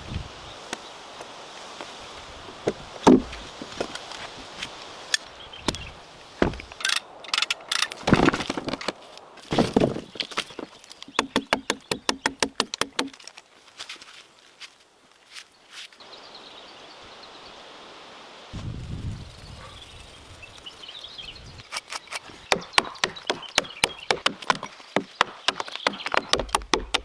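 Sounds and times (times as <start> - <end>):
knocks of wood being worked: 2.5 - 13.4, 21.7 - 27.0.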